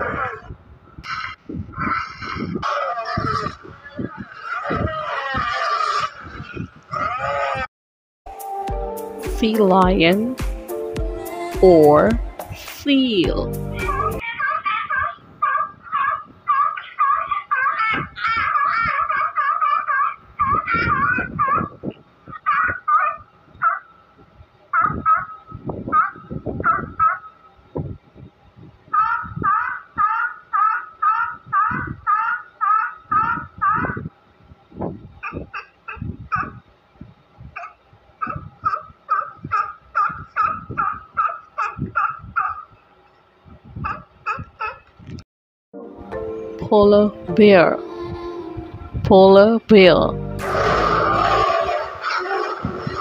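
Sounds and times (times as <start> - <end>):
sea lions barking: 0.0 - 7.7, 13.7 - 23.9, 24.8 - 27.4, 28.9 - 34.1, 35.2 - 36.6, 37.6 - 42.8, 43.8 - 44.9, 50.4 - 53.0.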